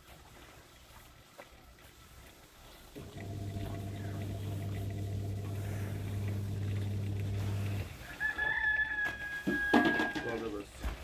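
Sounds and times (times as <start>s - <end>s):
small motor humming: 3.0s - 8.0s.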